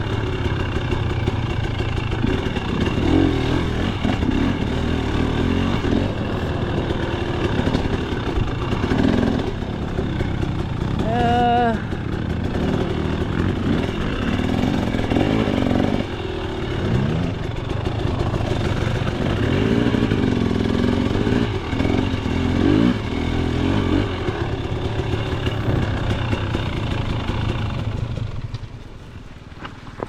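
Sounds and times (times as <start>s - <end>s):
dirt bike engine revving: 0.0s - 28.4s.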